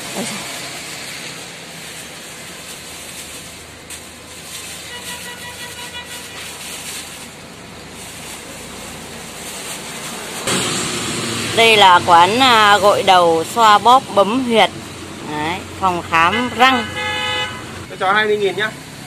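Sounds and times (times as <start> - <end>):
plastic bag rustling: 0.0 - 10.5
rain hissing: 0.0 - 15.8.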